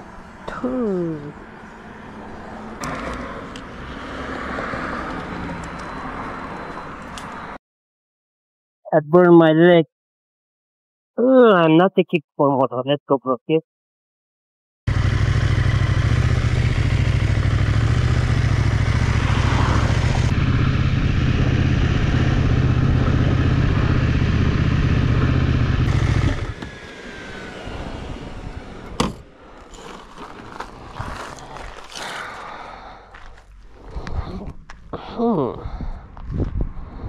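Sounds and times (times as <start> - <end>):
motorcycle engine rumble: 14.9 - 37.0.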